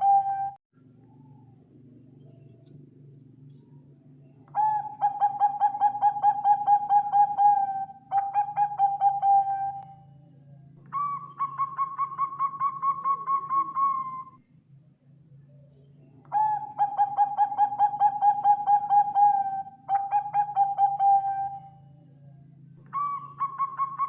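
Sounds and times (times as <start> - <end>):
dove cooing: 0.0 - 1.3, 4.5 - 10.1, 10.8 - 14.4, 16.3 - 21.9, 22.8 - 24.0
faint steady hum: 0.0 - 24.0.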